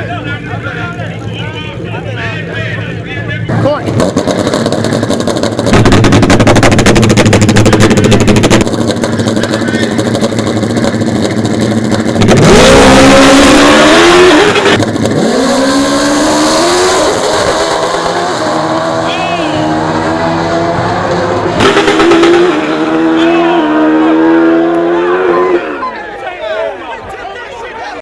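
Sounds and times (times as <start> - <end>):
motorcycles accelerating hard: 3.5 - 25.8.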